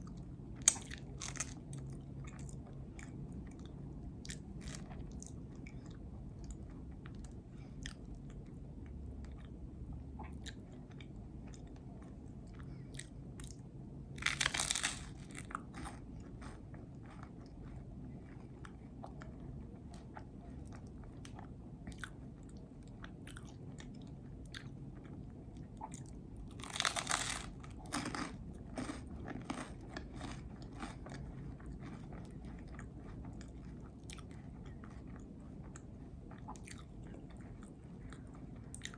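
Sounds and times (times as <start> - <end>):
steady low hum: 0.0 - 38.9
sandwich bites: 14.2 - 15.9, 26.6 - 30.9.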